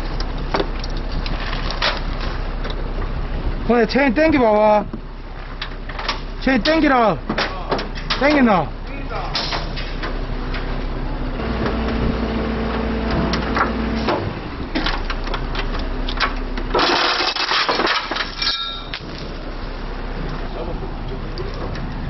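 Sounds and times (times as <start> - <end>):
mechanical hum: 0.0 - 22.0
metal clanks and knocks: 9.3 - 10.7, 13.1 - 19.2.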